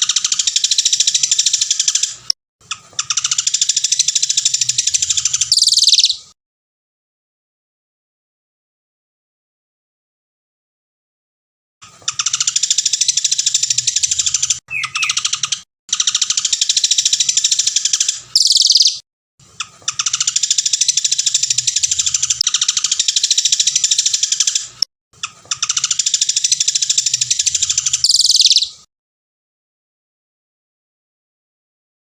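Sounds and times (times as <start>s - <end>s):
songbird singing rapid trills: 3.2s - 6.2s, 12.6s - 15.6s, 16.4s - 19.0s, 25.7s - 28.8s.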